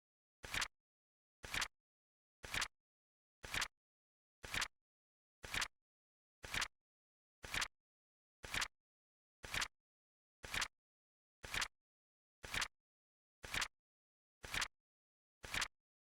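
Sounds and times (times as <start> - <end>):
flip clock click-flap: 0.4 - 0.7, 1.4 - 1.7, 2.4 - 2.7, 3.4 - 3.7, 4.4 - 4.7, 5.4 - 5.7, 6.4 - 6.7, 7.4 - 7.7, 8.4 - 8.7, 9.4 - 9.7, 10.4 - 10.7, 11.4 - 11.7, 12.4 - 12.7, 13.4 - 13.7, 14.4 - 14.7, 15.4 - 15.7.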